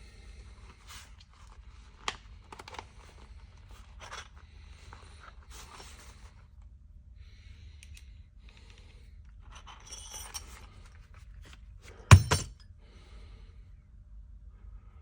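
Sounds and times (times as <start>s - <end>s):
rustling and handling of tools: 7.8s - 12.6s
hammer striking metal punch: 12.1s - 12.6s.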